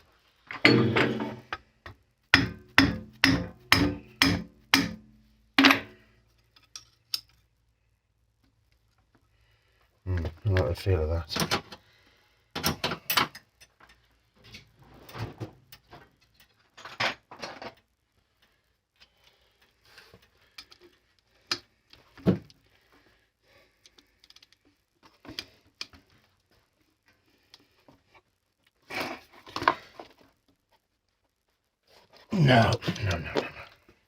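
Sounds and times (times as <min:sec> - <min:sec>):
hand tools and metal parts clinking: 0:00.5 - 0:01.6, 0:05.6 - 0:07.4.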